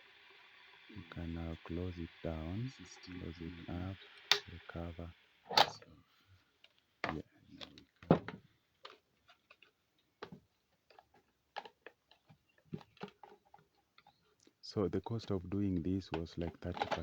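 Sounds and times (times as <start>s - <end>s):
clicks and knocks of cover handled: 5.5s - 5.8s, 6.6s - 14.6s, 16.1s - 17.0s.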